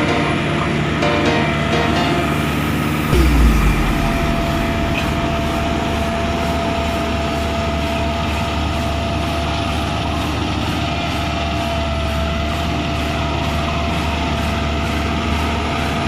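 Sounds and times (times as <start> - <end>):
constant whine: 3.1 - 9.3.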